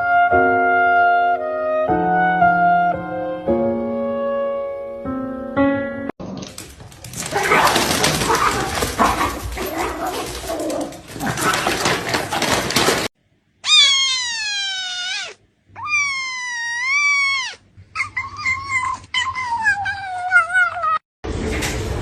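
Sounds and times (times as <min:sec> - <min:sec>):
animal crying: 0:13.6 - 0:21.0.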